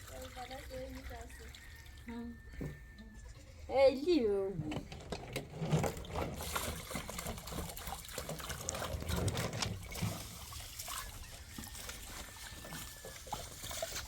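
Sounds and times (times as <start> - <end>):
water trickling and splashing: 0.0 - 2.5, 4.9 - 14.0
small knocks and clatters: 4.6 - 10.2.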